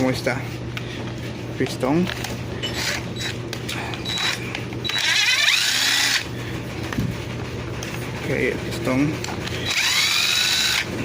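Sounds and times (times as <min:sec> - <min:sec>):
power drill whining: 0:02.6 - 0:03.4, 0:04.0 - 0:06.3, 0:09.6 - 0:10.9.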